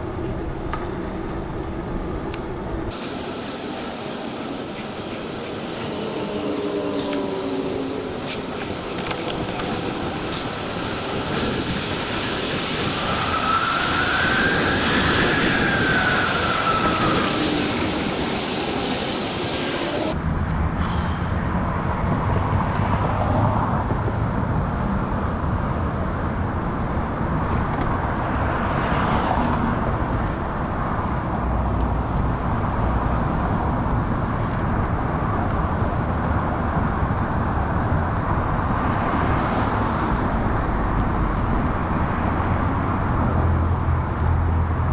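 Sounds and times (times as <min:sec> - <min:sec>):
wind buffeting microphone: 0:02.8 - 0:20.2
bicycle tyres humming on trail: 0:02.9 - 0:20.2, 0:27.8 - 0:44.9
rising and falling wail: 0:03.6 - 0:20.2.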